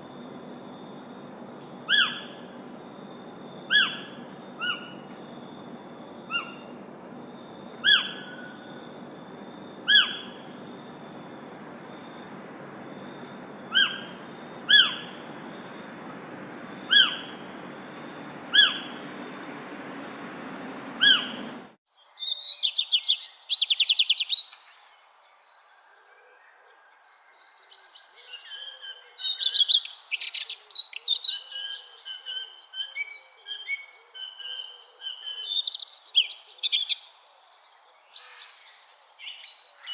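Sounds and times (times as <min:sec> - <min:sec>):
steady background hiss: 0:00.0 - 0:21.8
songbirds singing with trills: 0:00.0 - 0:23.5
bird giving short calls: 0:01.0 - 0:21.7.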